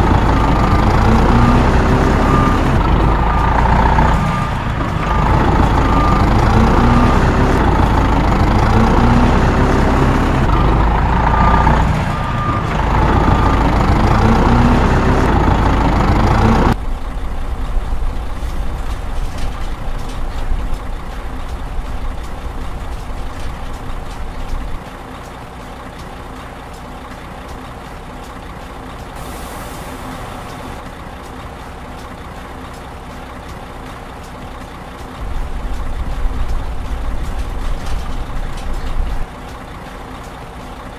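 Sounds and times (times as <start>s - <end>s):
reversing beeper: 0.0s - 16.8s, 29.2s - 30.8s
truck engine running: 0.0s - 40.9s.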